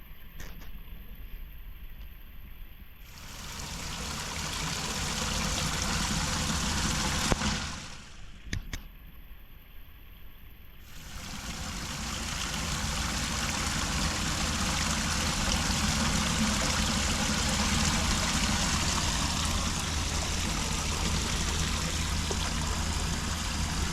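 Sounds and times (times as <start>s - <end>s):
water rushing into a drain: 3.0s - 8.2s, 10.8s - 23.9s.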